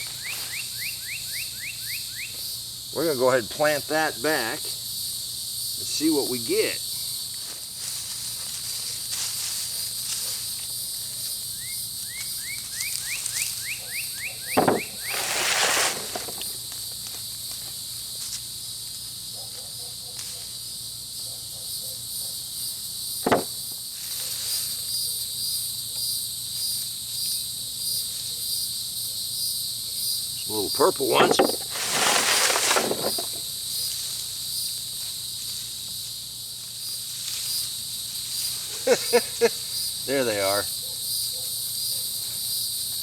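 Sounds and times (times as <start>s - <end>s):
insects buzzing: 0.0s - 43.0s
sharp thumps: 14.5s - 16.6s, 23.2s - 23.6s, 31.1s - 33.4s
hay rustling by hand: 14.6s - 16.6s, 31.2s - 33.4s.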